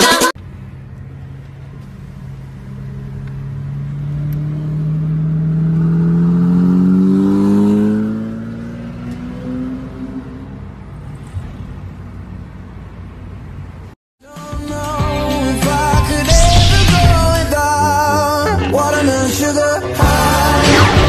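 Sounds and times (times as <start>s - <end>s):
car engine accelerating: 0.4s - 12.4s.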